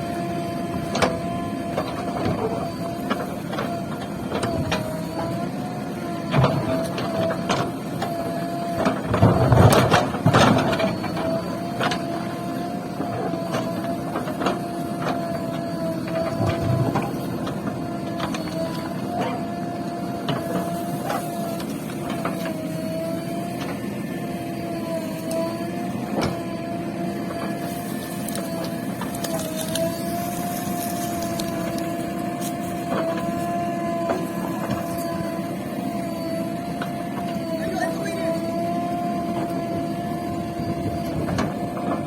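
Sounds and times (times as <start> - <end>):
diesel engine running: 0.0 - 42.0
wavering whine: 27.3 - 41.4.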